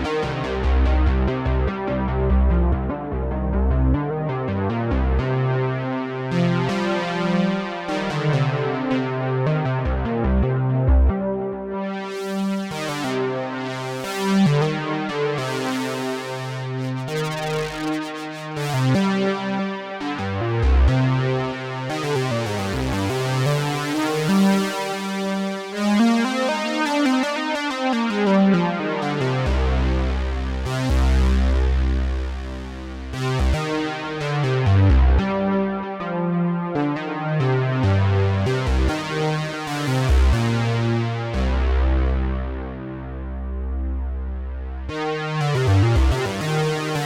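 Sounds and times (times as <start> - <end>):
synthesizer bass and chords: 0.0 - 25.0, 25.6 - 47.0
analog synthesizer chords: 25.6 - 47.0.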